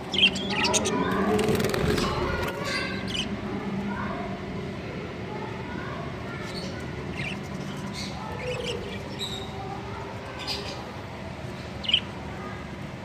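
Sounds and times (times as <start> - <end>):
steady low hum: 0.0 - 5.2.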